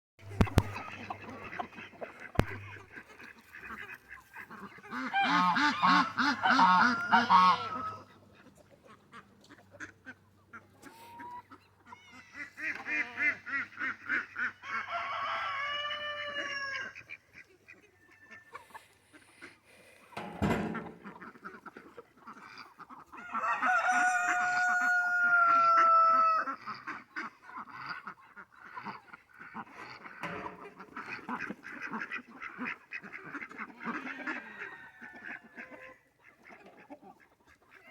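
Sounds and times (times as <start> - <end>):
fowl calling: 0.2 - 8.1
thump: 0.3 - 0.9, 2.4 - 2.8, 20.2 - 21.2, 30.2 - 30.7.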